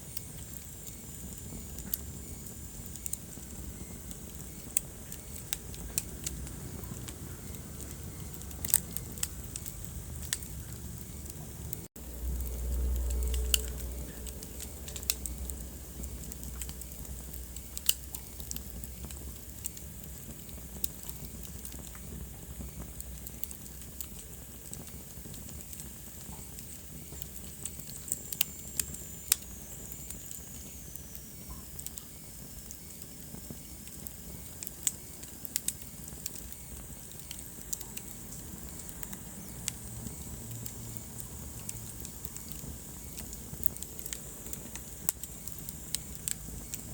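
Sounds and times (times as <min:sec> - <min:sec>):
wood fire crackling and popping: 0:00.0 - 0:46.9
low rumble: 0:05.5 - 0:17.8.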